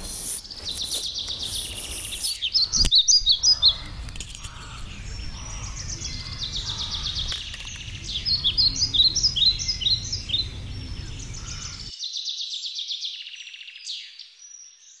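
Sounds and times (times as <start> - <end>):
birds chirping and singing: 0.0 - 15.0
low background rumble: 2.8 - 11.9.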